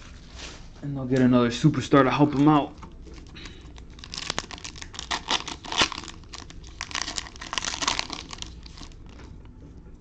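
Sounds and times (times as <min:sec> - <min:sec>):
card pack wrapper tearing and crinkling: 0:02.3 - 0:09.2.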